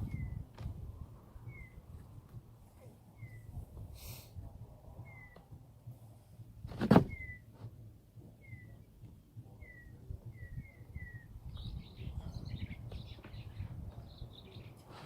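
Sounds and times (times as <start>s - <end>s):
bird chirping: 1.4s - 1.8s, 8.4s - 8.9s, 9.5s - 14.8s.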